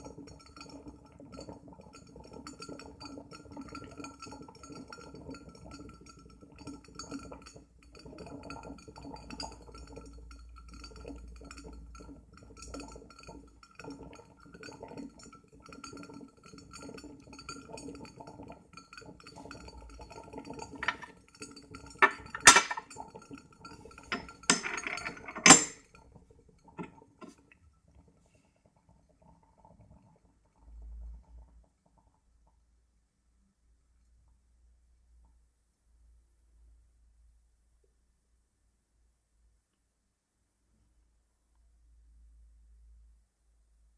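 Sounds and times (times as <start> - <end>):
glass parts clinking: 20.8 - 21.1, 22.0 - 22.9, 24.0 - 25.8.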